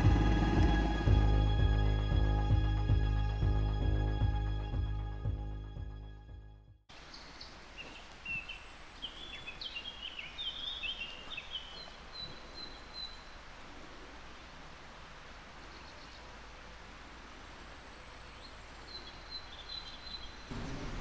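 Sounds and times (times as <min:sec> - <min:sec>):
songbird chirping: 0:06.9 - 0:14.6, 0:15.3 - 0:21.0
outdoor background hiss: 0:06.9 - 0:21.0.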